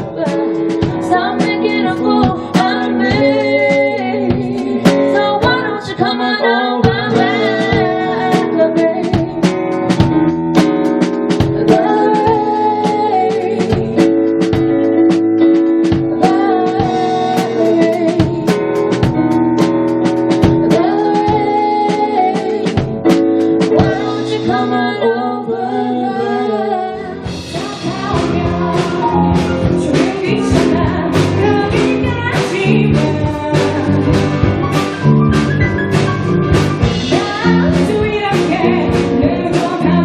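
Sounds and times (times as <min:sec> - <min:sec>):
person singing: 0:00.0 - 0:10.7, 0:11.3 - 0:14.6, 0:15.8 - 0:19.0, 0:20.3 - 0:34.4, 0:37.0 - 0:40.0
full band with bass and drums: 0:00.0 - 0:40.0
guitar: 0:00.0 - 0:40.0
percussion beat: 0:06.9 - 0:24.0, 0:27.3 - 0:40.0.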